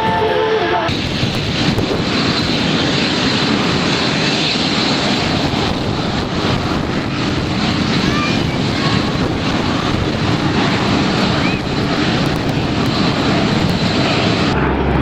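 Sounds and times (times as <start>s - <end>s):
aircraft engine rumble: 0.0s - 15.0s.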